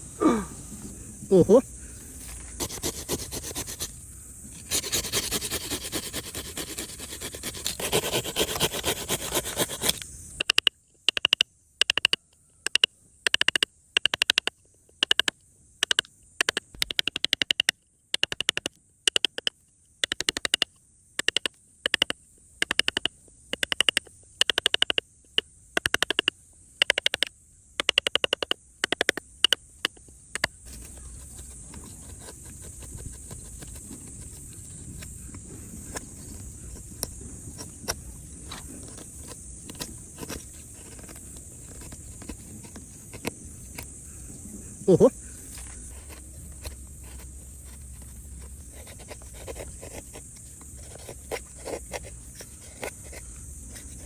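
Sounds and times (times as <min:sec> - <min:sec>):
tool scraping: 0:02.2 - 0:03.9, 0:04.6 - 0:10.6, 0:30.6 - 0:43.9.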